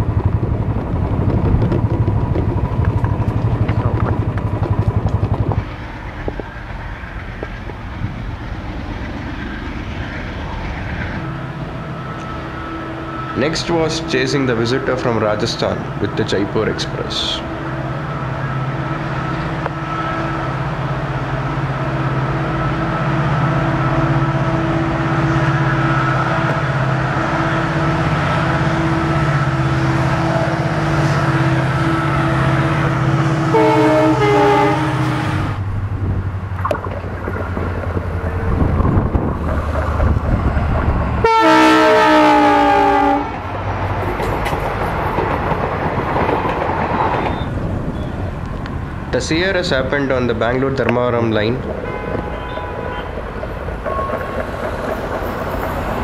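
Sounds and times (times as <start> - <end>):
locomotive engine running: 0.0 - 56.0
train wheels on rails: 0.0 - 56.0
locomotive horn: 11.2 - 35.6, 41.2 - 43.5, 51.8 - 53.2.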